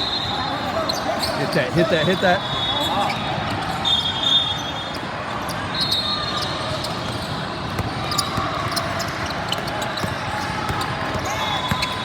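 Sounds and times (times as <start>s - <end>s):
basketball bouncing on gym floor: 6.8s - 12.0s.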